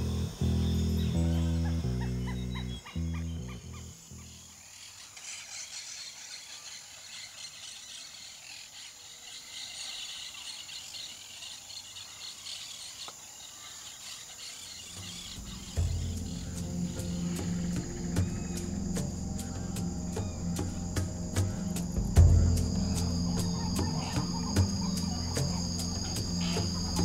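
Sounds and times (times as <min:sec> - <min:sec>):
insects chirring: 0:00.0 - 0:27.0
soundtrack music: 0:15.2 - 0:27.0.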